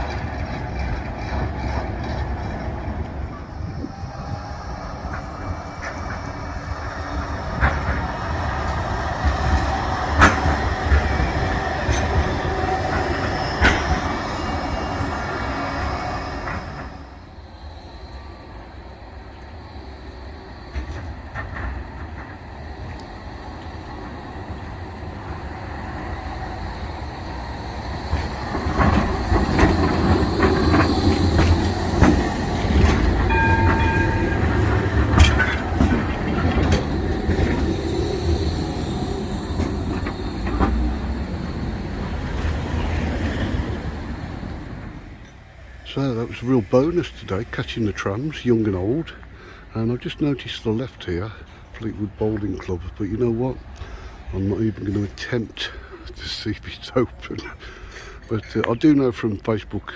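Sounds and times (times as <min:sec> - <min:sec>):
rail clicks: 0:00.0 - 0:17.4, 0:18.1 - 0:59.9
tram rumbling past: 0:00.0 - 0:59.9
brief high tone: 0:33.3 - 0:34.8.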